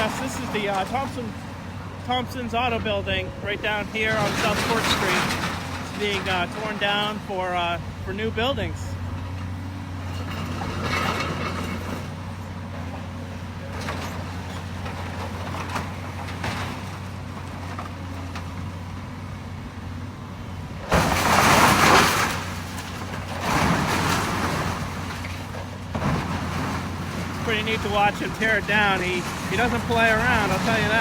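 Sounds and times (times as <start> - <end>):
debris crashing: 0.0 - 1.4, 2.0 - 8.9, 20.8 - 31.0
excavator diesel engine: 0.0 - 31.0.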